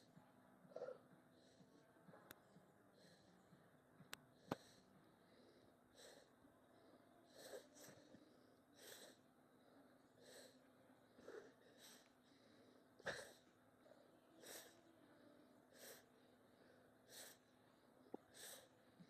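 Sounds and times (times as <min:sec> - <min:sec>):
man breathing hard: 0:15.7 - 0:19.0.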